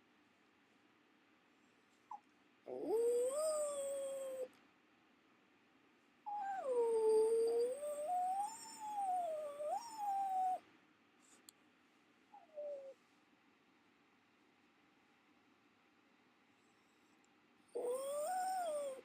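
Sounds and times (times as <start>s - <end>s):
dog whining and howling: 2.1s - 4.5s, 6.3s - 10.6s, 12.3s - 13.0s, 17.7s - 19.0s.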